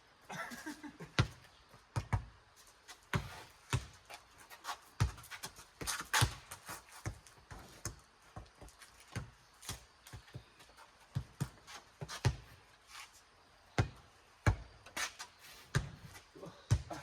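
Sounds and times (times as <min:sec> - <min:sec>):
shoe scuffs and steps: 0:02.6 - 0:13.4.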